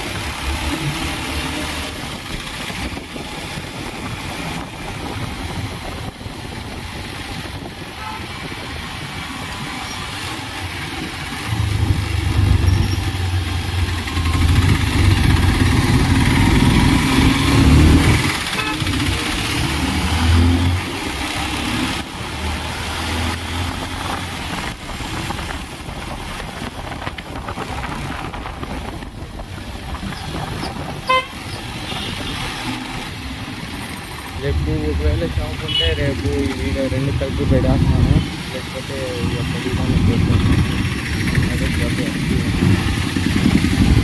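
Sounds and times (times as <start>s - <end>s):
motor vehicle engine running: 10.3s - 44.0s.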